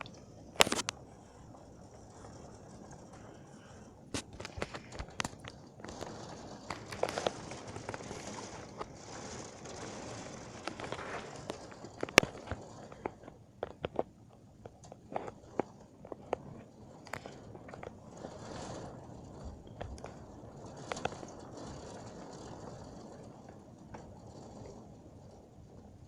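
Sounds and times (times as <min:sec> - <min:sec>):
heavy rain hissing: 0:00.0 - 0:13.6.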